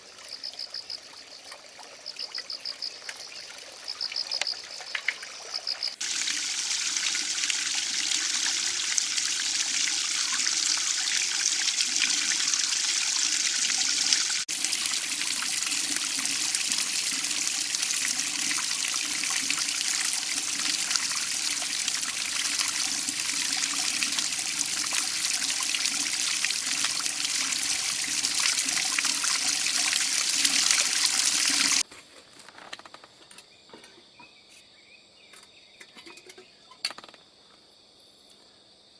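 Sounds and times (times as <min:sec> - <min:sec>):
faint crickets chirping: 0:00.0 - 0:06.0, 0:32.0 - 0:38.9
running water trickling: 0:00.0 - 0:31.8.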